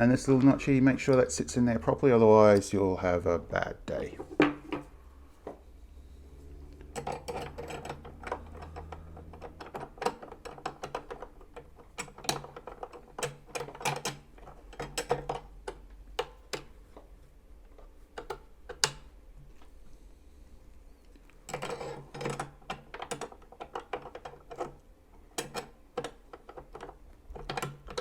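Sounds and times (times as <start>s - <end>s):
metal parts clicking and tapping: 6.8s - 19.7s, 21.2s - 28.0s.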